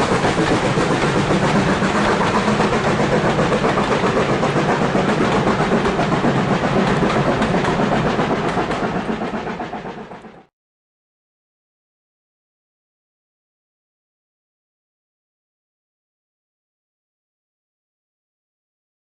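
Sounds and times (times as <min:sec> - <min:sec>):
train running past: 0:00.0 - 0:10.5.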